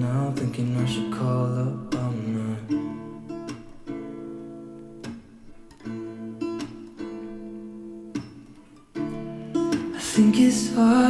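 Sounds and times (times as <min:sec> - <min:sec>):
person singing: 0:00.0 - 0:03.0, 0:09.8 - 0:11.0
acoustic guitar strumming: 0:00.0 - 0:11.0.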